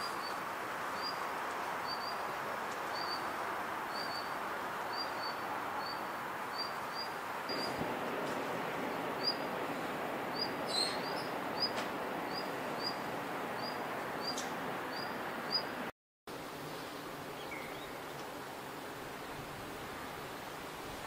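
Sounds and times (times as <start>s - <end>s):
outdoor background noise: 0.0s - 21.0s
small bird chirping: 10.3s - 15.7s.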